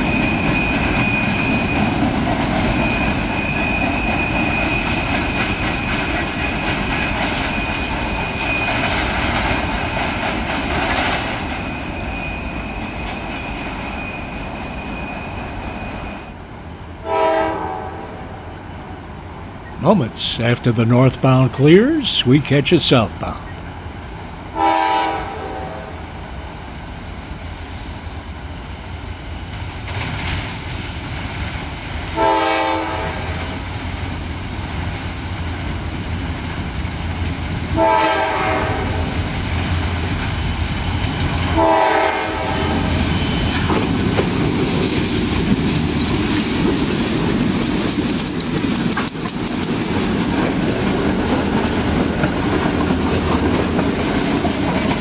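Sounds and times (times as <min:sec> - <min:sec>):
train air horn blasts: 0:17.0 - 0:18.4, 0:24.6 - 0:26.0, 0:32.2 - 0:33.4, 0:37.8 - 0:39.1, 0:41.6 - 0:42.9
wheels clicking over rail joints: 0:43.5 - 0:55.0.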